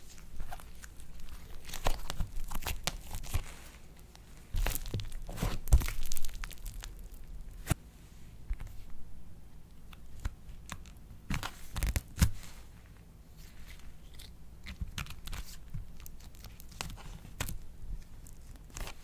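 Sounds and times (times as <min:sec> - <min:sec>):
slime crackling and popping: 0:00.1 - 0:03.4, 0:04.5 - 0:07.8.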